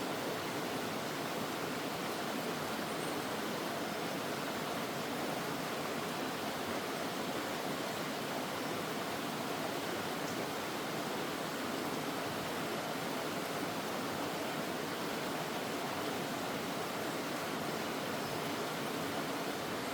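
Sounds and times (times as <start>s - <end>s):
stream flowing: 0.0s - 19.9s.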